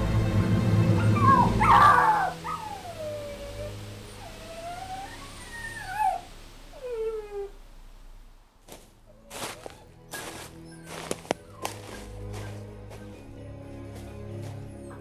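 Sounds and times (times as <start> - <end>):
music: 0.0 - 15.0
puppy whining and whimpering: 1.0 - 7.5, 10.6 - 12.0.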